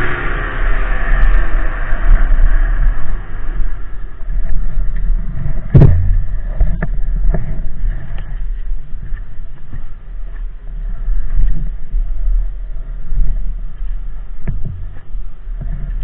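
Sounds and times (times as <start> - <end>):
loud thump: 5.6 - 6.9.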